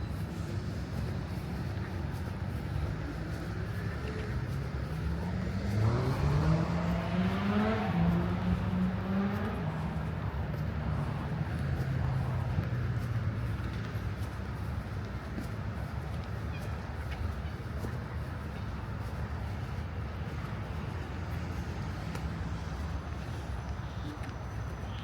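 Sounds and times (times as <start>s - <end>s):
road traffic rumble: 0.0s - 25.0s
vehicle accelerating past: 5.2s - 13.0s.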